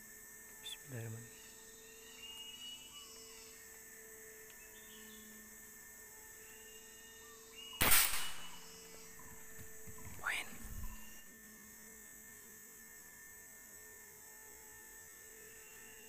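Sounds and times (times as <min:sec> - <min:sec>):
sharp gunshot: 0:07.8 - 0:08.8.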